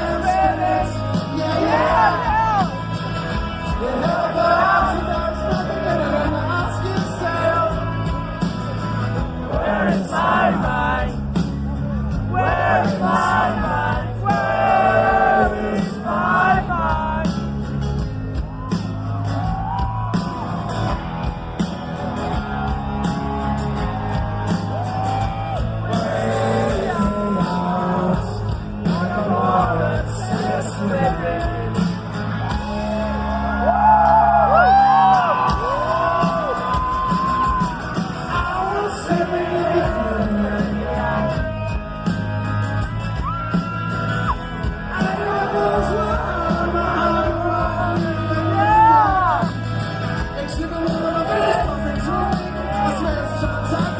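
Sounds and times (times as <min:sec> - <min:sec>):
heavy bass: 0:00.0 - 0:53.9
rock music with singing: 0:00.0 - 0:53.9.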